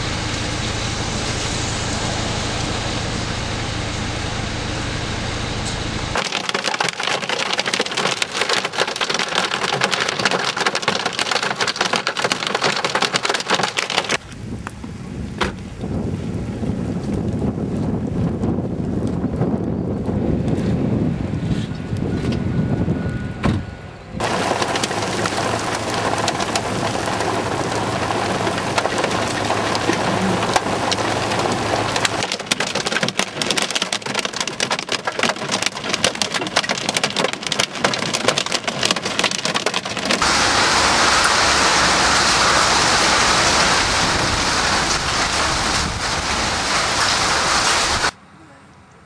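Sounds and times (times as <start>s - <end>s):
hail striking surfaces: 6.2s - 19.6s, 24.2s - 48.2s
wind rumble on microphone: 14.2s - 32.3s, 41.2s - 48.2s.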